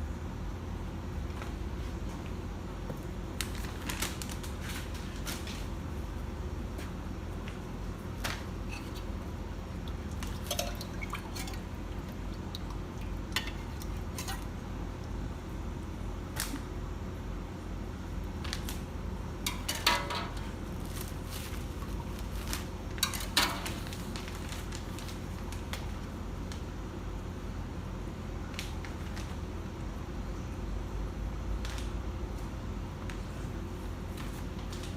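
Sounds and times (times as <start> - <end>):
steady low hum: 0.0 - 34.9
utensils clinking on pots: 10.4 - 11.6.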